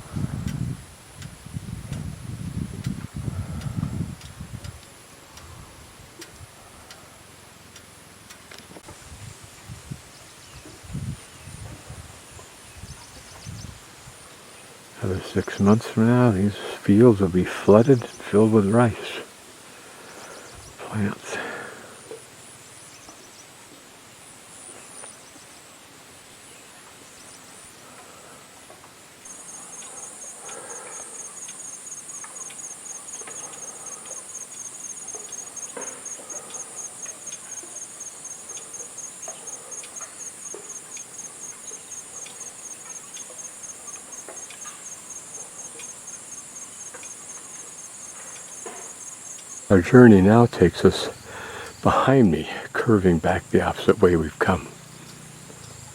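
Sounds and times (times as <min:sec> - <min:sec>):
insect trilling: 0:29.3 - 0:55.9.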